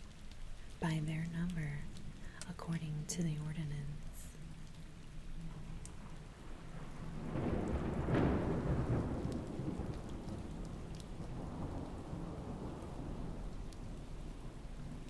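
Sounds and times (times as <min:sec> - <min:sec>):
steady rain: 0:00.0 - 0:15.0
thunder rumbling: 0:03.9 - 0:15.0.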